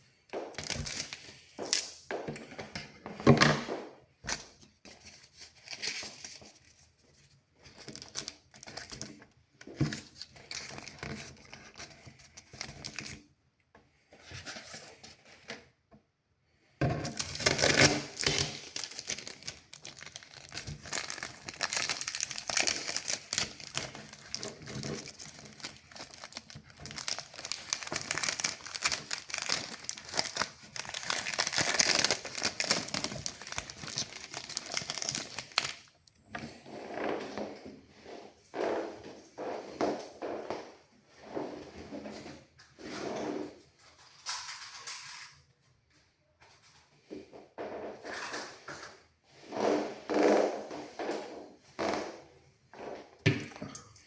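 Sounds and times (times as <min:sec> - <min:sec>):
paper crinkling and rustling: 0:04.2 - 0:13.3, 0:17.0 - 0:36.1.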